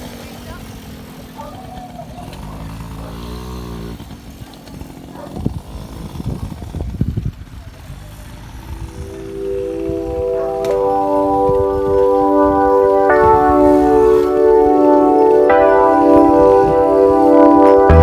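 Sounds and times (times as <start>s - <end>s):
music with organ-like tones: 8.9s - 18.0s.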